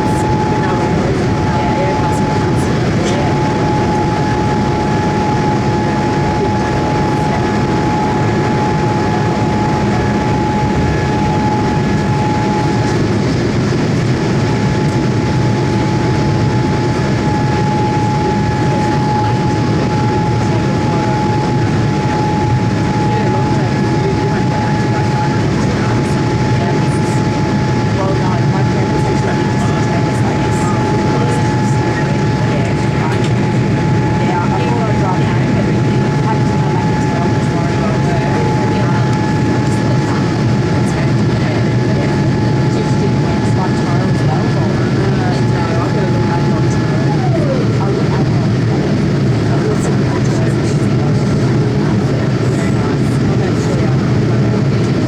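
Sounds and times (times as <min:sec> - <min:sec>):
engine and airflow rumble: 0:00.0 - 0:55.0
steady whine: 0:00.0 - 0:55.0.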